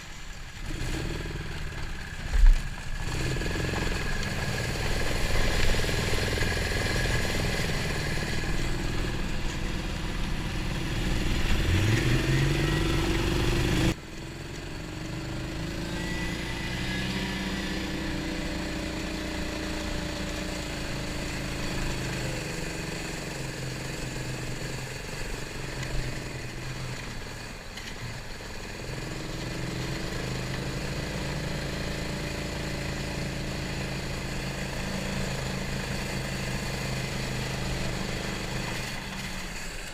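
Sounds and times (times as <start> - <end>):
snowmobile engine revving: 0.6 - 14.0, 14.9 - 26.8.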